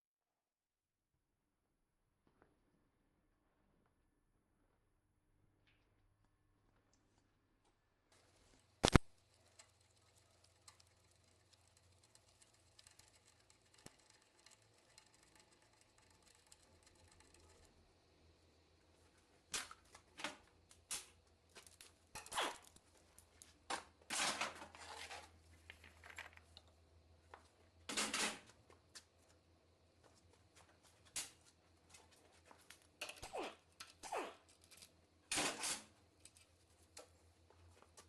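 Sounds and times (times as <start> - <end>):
hand tools and metal parts clanking: 19.5 - 26.6, 27.4 - 28.7, 30.8 - 38.0.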